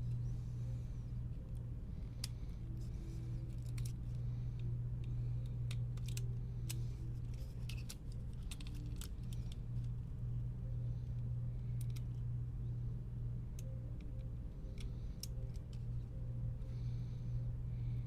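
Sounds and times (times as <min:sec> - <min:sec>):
low electrical hum: 0:00.0 - 0:18.0
plastic and metal parts clicking: 0:03.4 - 0:04.7, 0:05.6 - 0:10.0.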